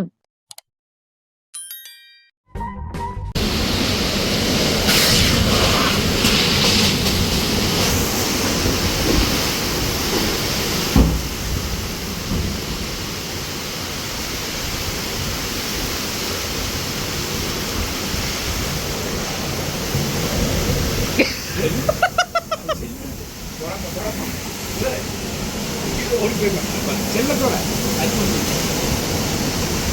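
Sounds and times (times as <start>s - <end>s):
heavy rain: 3.4s - 29.9s
strong gusting wind: 3.4s - 29.9s
thump: 10.9s - 11.6s.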